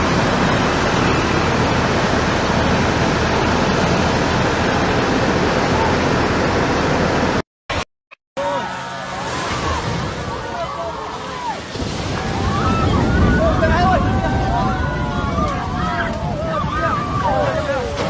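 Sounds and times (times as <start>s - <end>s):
floodwater rushing: 8.4s - 18.0s.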